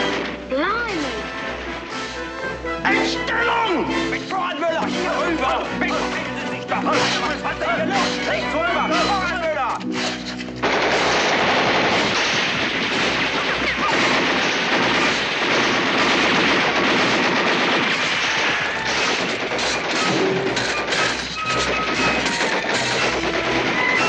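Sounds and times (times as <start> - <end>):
rapid gunfire: 9.9 - 24.0.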